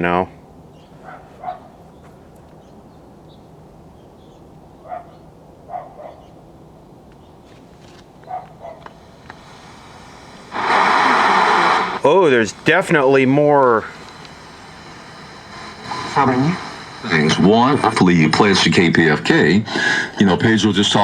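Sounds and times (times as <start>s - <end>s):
radio hum: 0.0s - 2.7s, 7.1s - 21.0s.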